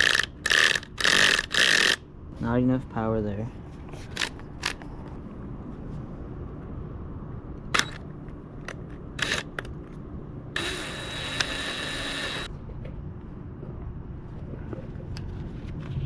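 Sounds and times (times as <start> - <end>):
power drill drilling: 0.0 - 2.0, 7.8 - 8.0, 9.2 - 9.6, 10.6 - 12.5
tools clicking and knocking: 0.0 - 2.0
steady low rumble: 2.0 - 16.0.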